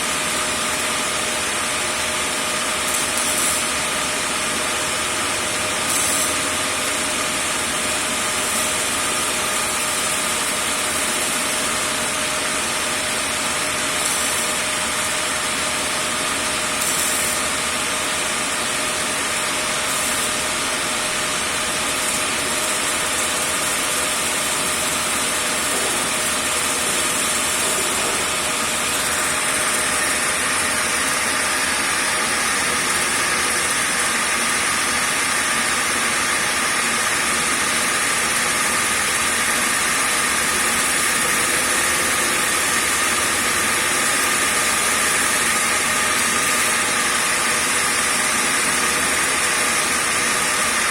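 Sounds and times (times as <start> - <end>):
grinder running with a whine: 0.0 - 50.9.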